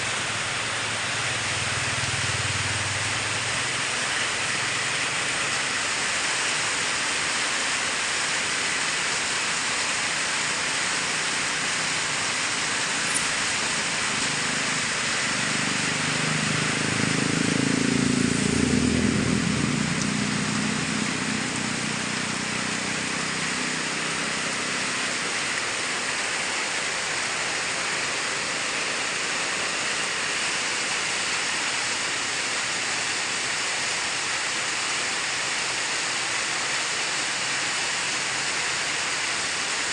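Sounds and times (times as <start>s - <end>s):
heavy rain hissing: 0.0s - 39.9s
vehicle engine passing: 13.9s - 25.5s.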